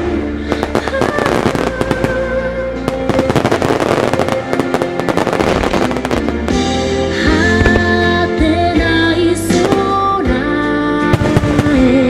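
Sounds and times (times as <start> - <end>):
fireworks bursting and crackling: 0.0 - 8.5, 9.5 - 10.4, 11.0 - 12.0
song over loudspeakers: 0.0 - 12.0.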